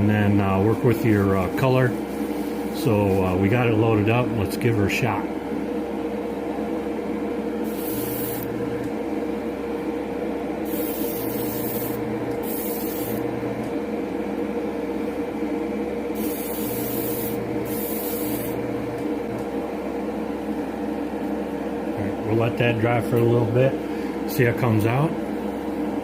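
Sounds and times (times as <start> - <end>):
motor hum: 5.1 - 24.3
airbrush hissing: 7.6 - 8.5, 10.7 - 13.2, 16.2 - 18.6.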